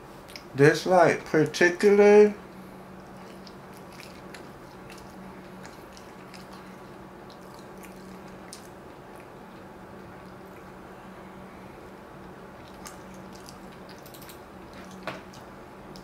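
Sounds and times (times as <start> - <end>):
low hum: 0.0 - 16.0
chewing with soft mouth clicks: 0.2 - 0.5, 3.0 - 10.8, 12.2 - 16.0.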